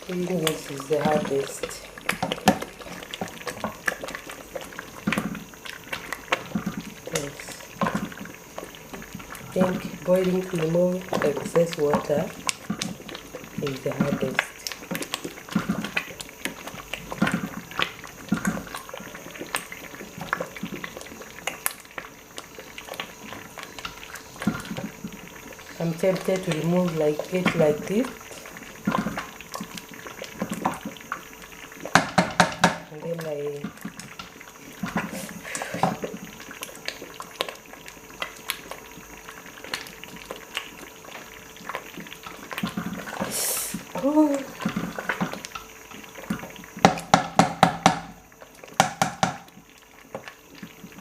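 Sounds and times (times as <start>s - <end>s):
thick paste bubbling in a pot: 0.0s - 51.0s
short hiss: 43.3s - 43.8s.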